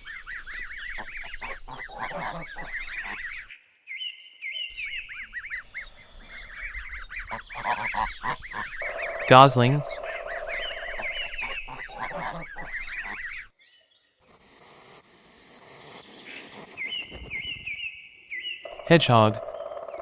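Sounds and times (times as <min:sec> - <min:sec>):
geese honking: 0:00.0 - 0:03.5, 0:05.1 - 0:13.5.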